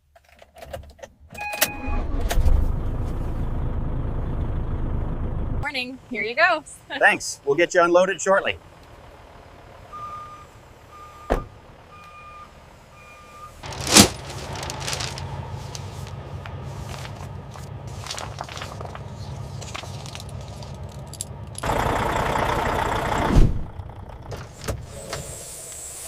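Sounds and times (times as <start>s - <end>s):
truck backup alarm beeping: 1.4s - 2.3s, 8.6s - 13.8s
truck diesel engine running: 2.1s - 25.5s.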